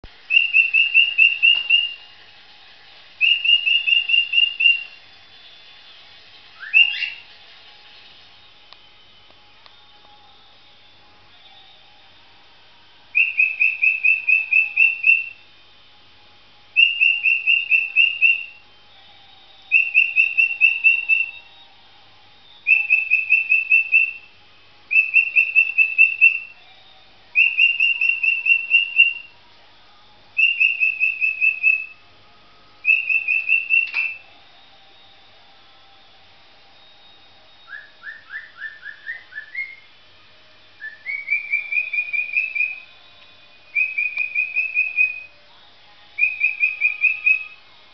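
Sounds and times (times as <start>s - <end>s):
parrot whistling: 0.3s - 2.1s, 3.2s - 5.0s, 6.6s - 7.3s, 13.1s - 15.4s, 16.8s - 18.6s, 19.7s - 21.5s, 22.6s - 24.3s, 24.9s - 26.6s, 27.3s - 29.4s, 30.4s - 32.0s, 32.8s - 34.3s, 37.6s - 39.9s, 40.8s - 43.0s, 43.7s - 45.3s, 46.2s - 47.6s.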